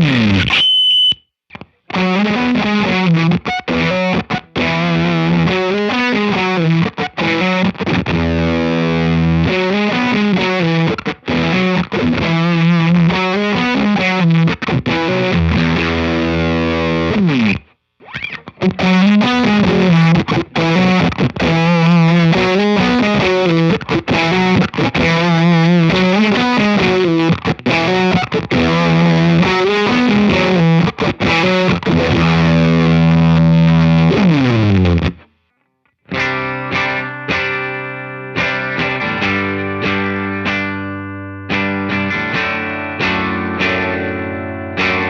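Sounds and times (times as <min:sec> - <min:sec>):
distorted electric guitar riff: 0:00.0 - 0:45.0.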